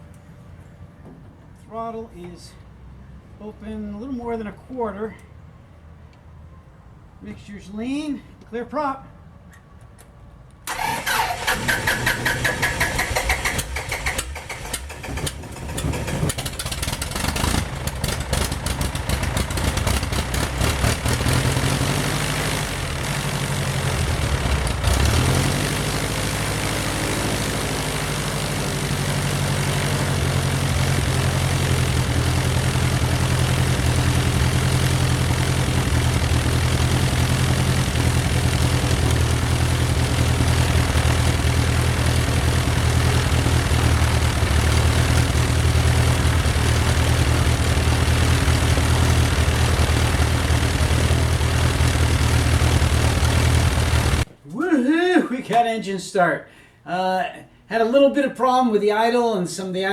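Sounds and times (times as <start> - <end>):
aircraft engine starting and idling: 9.5 - 54.3.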